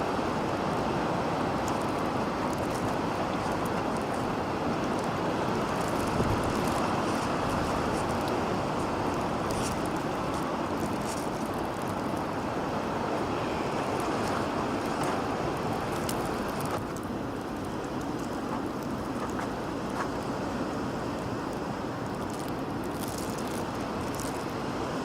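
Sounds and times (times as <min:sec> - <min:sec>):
strong wind blowing: 0:00.0 - 0:16.9.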